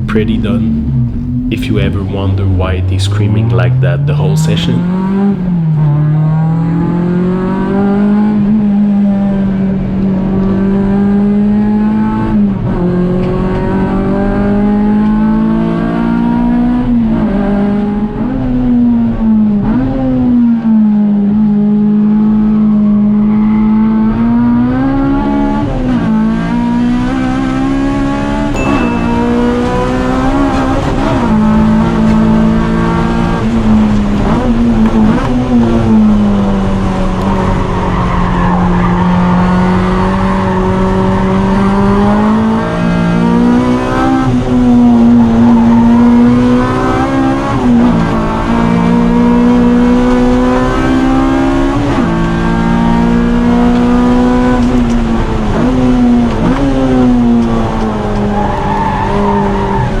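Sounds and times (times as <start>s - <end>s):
car engine revving hard: 4.8s - 28.5s, 29.1s - 60.0s
tires squealing: 37.0s - 42.3s, 44.5s - 47.6s, 57.8s - 60.0s.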